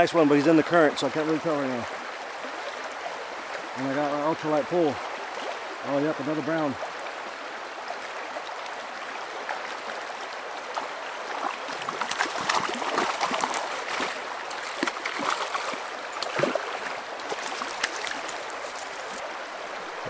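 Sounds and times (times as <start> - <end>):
fast river riffle: 8.8 - 20.0
fish splashing in water: 10.7 - 19.2.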